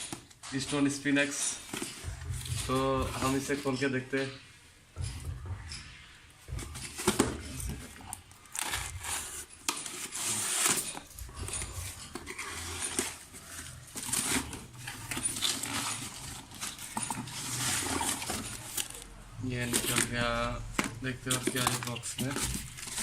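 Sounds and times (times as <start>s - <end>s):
packaging rustling: 6.5s - 23.0s.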